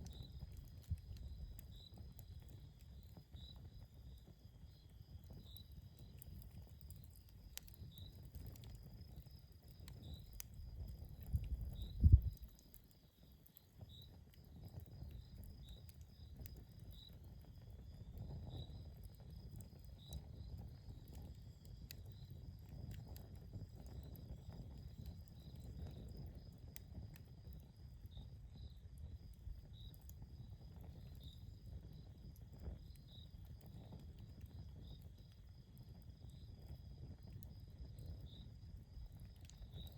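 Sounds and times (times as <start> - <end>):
fire crackling: 0.0 - 39.9
crickets chirping: 7.0 - 12.7.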